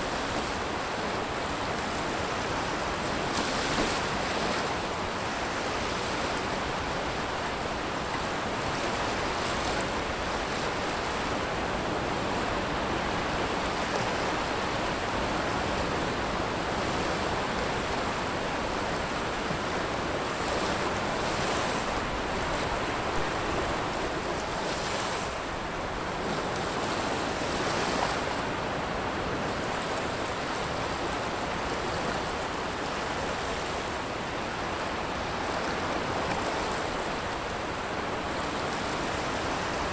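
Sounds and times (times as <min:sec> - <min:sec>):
surf washing over pebbles: 0:00.0 - 0:39.9.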